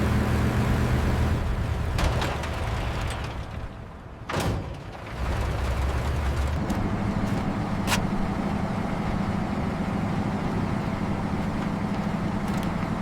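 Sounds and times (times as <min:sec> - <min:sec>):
steady engine drone: 0:00.0 - 0:02.0, 0:05.2 - 0:13.0.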